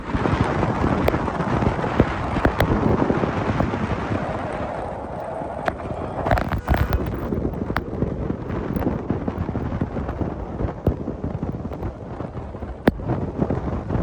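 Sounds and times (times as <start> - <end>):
road and wind noise: 0.0 - 14.0
sharp clicks and knocks: 1.8 - 2.9, 6.3 - 12.0, 12.8 - 13.0.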